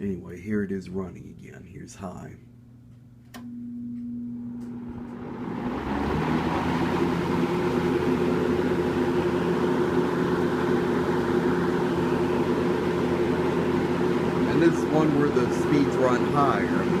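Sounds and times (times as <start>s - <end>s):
box fan rushing air: 4.3s - 17.0s.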